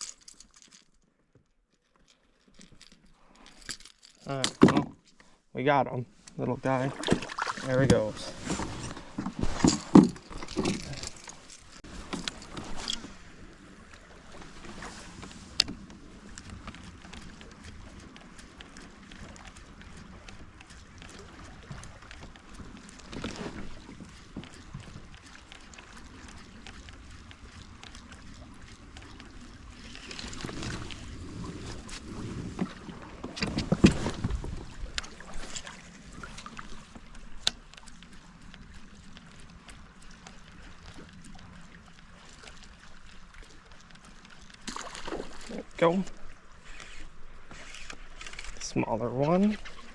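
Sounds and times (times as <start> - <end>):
water sounds around kayak: 0.0 - 49.9
small knocks and rustles: 7.1 - 13.2.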